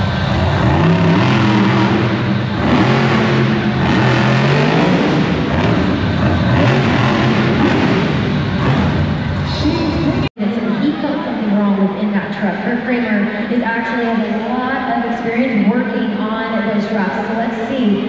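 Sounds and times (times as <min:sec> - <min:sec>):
truck engine revving: 0:00.0 - 0:10.4.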